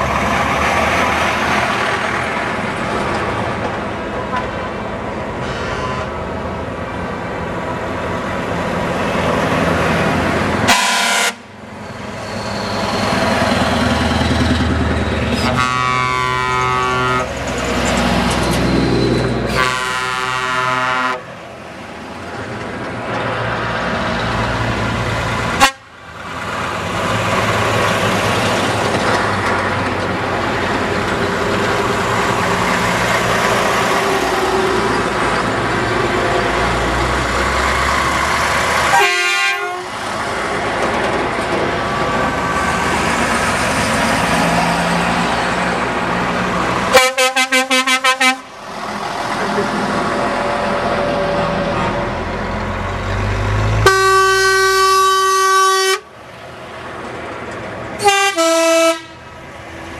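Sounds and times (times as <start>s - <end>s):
truck engines running: 0.0s - 59.9s
truck horn blasts: 5.4s - 6.1s, 10.6s - 11.5s, 15.4s - 17.4s, 19.5s - 21.3s, 25.6s - 25.9s, 38.9s - 40.0s, 46.9s - 48.5s, 53.8s - 56.1s, 58.0s - 59.2s.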